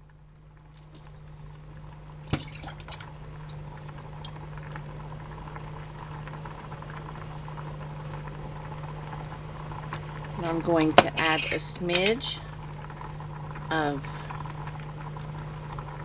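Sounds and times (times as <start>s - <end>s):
food bubbling in a pot: 0.0s - 16.0s
cookware clinking: 10.4s - 12.3s.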